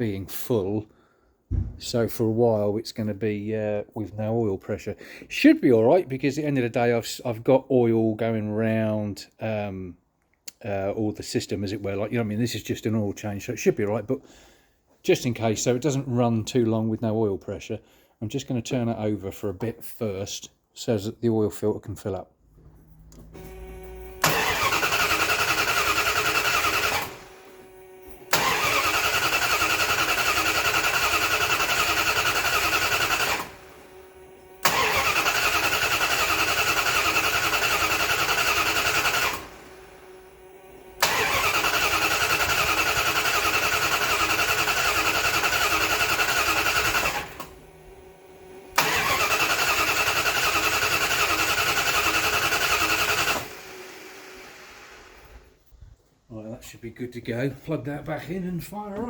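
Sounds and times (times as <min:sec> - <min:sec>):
engine cranking by starter motor: 0:23.0 - 0:55.6.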